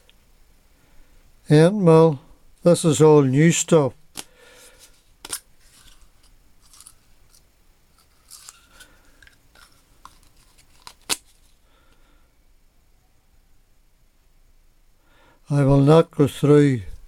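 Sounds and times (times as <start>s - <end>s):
faint packaging rustling: 4.1s - 12.0s.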